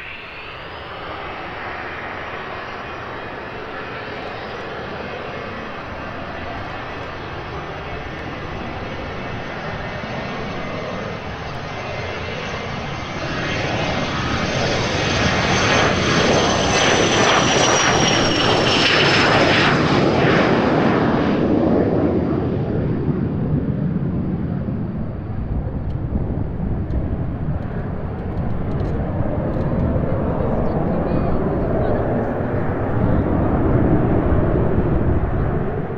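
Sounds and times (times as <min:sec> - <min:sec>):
jet passing close by: 0:00.0 - 0:35.9.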